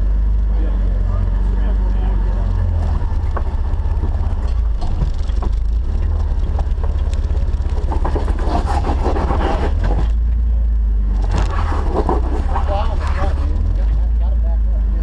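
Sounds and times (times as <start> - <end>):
engine rumbling: 0.0 - 15.0
rattle: 2.3 - 10.4, 11.1 - 14.2.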